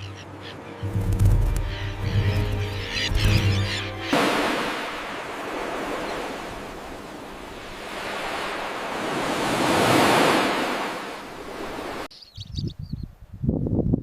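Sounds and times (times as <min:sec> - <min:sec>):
surf washing in: 0:04.0 - 0:12.1
faint bird chirps: 0:12.1 - 0:13.1.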